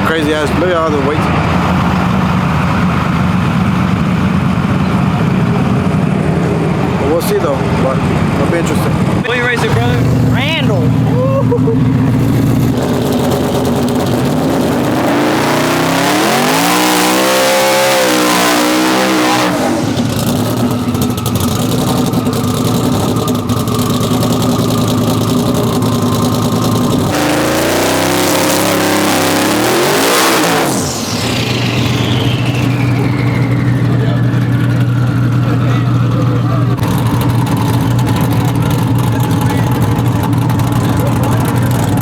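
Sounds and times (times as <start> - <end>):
truck engine idling and revving: 0.0 - 42.0
high whistle: 30.4 - 34.2.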